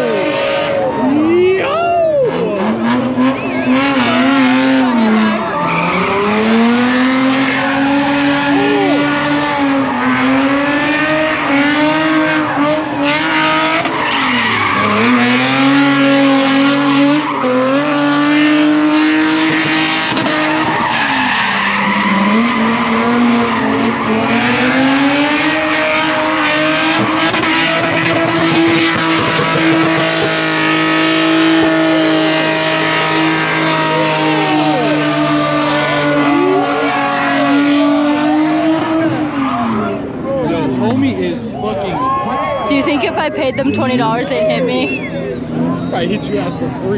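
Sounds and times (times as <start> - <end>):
car engine revving high: 0.0 - 46.9.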